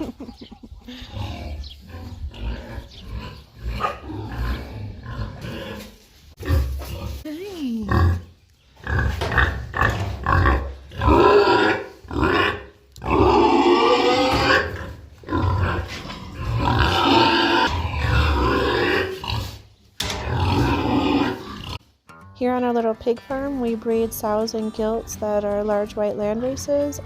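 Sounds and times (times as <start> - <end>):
pigs calling loudly: 0.8 - 7.2, 8.8 - 21.8.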